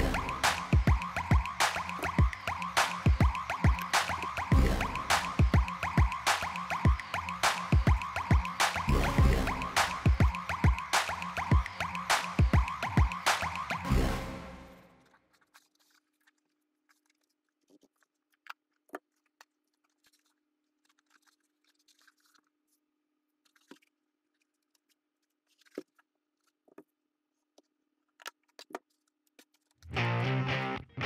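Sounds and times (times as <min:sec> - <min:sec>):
upbeat rock music with guitar: 0:29.9 - 0:31.0.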